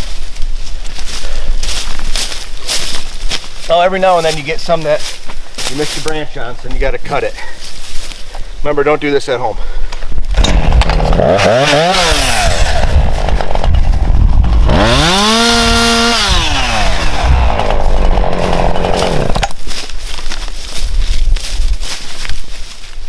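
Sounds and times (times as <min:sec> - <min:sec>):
chainsaw revving: 0:10.3 - 0:19.6.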